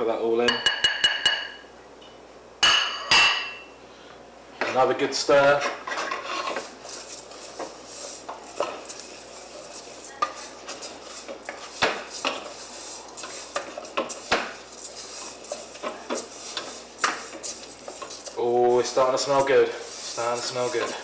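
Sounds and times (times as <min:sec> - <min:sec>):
utensil scraping a pan: 0:04.7 - 0:21.0.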